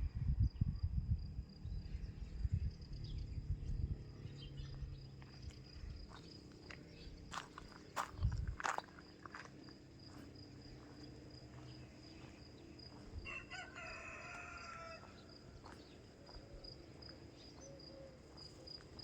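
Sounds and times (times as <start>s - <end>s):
insects chirring: 4.0s - 19.0s
rooster crowing: 13.2s - 15.4s.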